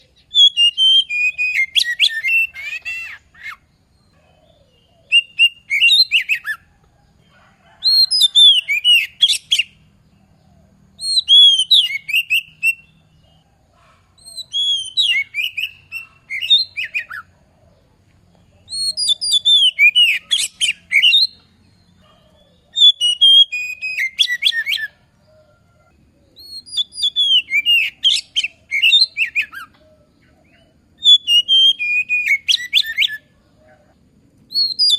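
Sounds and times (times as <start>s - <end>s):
bird singing whistles and chatter: 0.0s - 3.7s, 4.4s - 6.7s, 7.8s - 9.8s, 11.0s - 13.0s, 14.2s - 17.3s, 18.6s - 21.4s, 22.0s - 25.0s, 26.4s - 33.3s, 34.5s - 34.9s.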